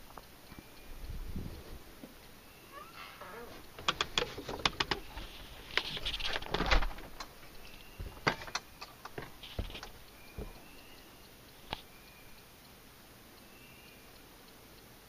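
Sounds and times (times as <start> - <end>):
sharp clicks and rustles: 1.7 - 10.8.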